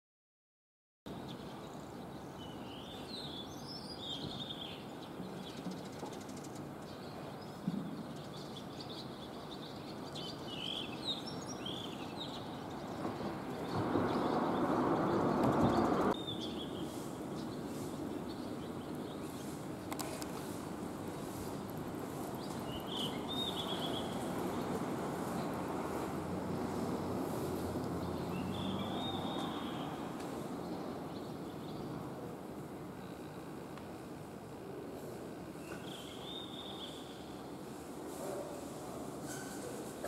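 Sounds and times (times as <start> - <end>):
birds chirping: 1.1 - 32.1, 32.9 - 37.8
outdoor background noise: 1.1 - 40.0
loud rushing noise: 13.0 - 16.2.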